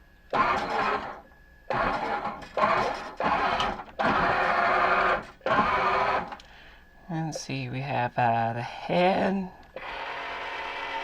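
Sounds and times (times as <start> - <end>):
toy robot motors whirring: 9.8 - 11.0.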